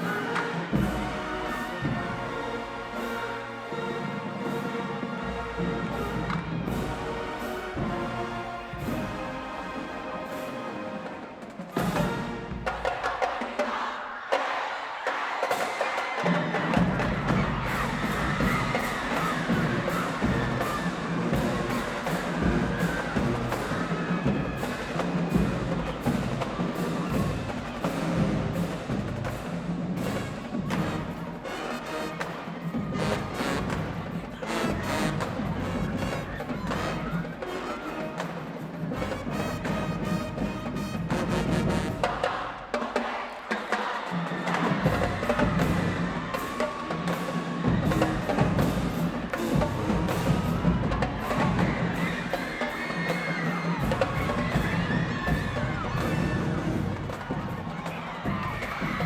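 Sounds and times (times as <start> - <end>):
held brass notes: 0.0 - 13.4, 16.7 - 43.2
drumline percussion: 0.0 - 59.0
marching band playing: 0.0 - 59.0.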